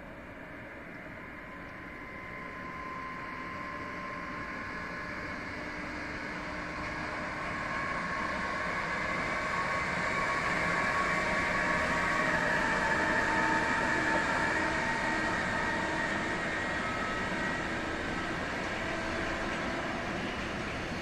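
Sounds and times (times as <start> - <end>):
freight train rolling with whine: 0.0 - 21.0.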